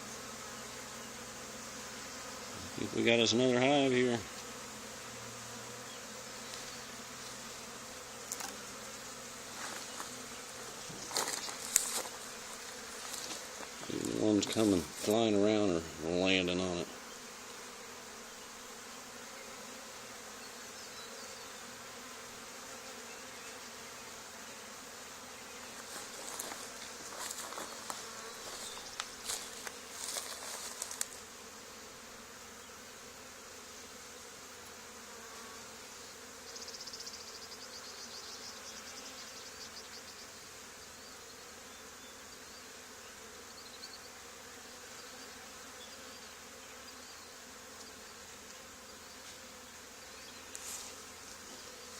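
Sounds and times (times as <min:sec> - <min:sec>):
bee swarm buzzing: 0:00.0 - 0:51.9
crackling rustles: 0:09.5 - 0:15.2, 0:25.6 - 0:31.3, 0:50.5 - 0:51.4.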